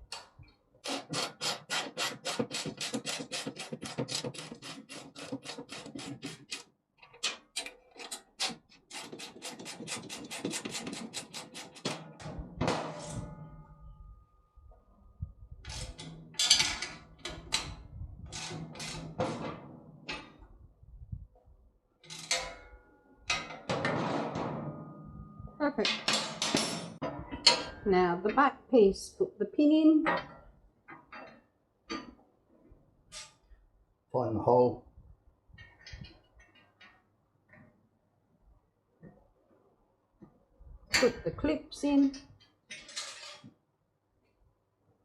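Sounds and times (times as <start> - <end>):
metal parts clattering: 42.7 - 43.5.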